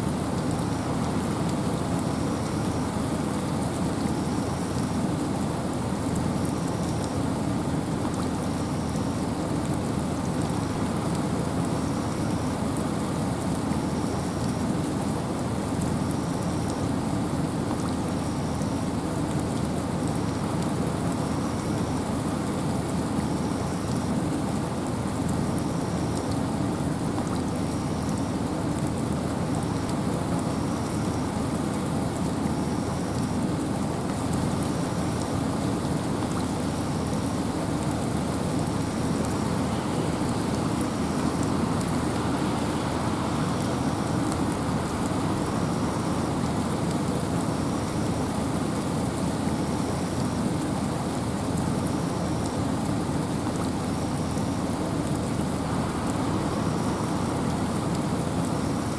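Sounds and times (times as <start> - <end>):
rain in a forest: 0.0 - 58.9
wind: 0.0 - 58.9.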